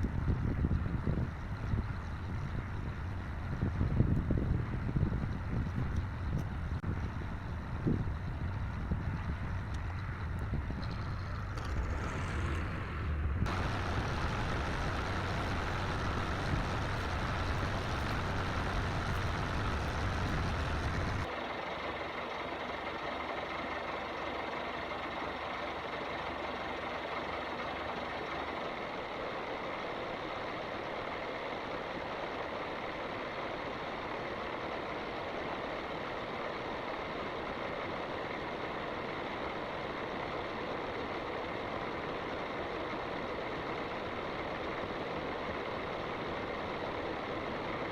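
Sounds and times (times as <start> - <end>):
heavy low rumble: 0.0 - 21.3
farm machinery engine running: 0.0 - 47.9.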